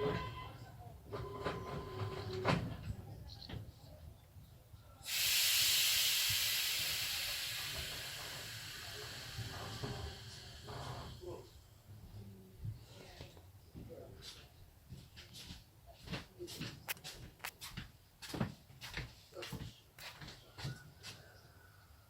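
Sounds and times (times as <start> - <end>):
loud hiss of air venting: 5.0 - 11.6.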